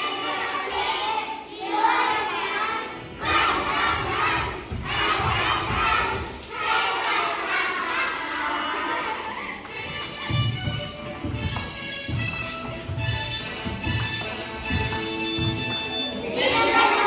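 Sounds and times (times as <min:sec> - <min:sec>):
children shouting together: 0:16.2 - 0:17.0.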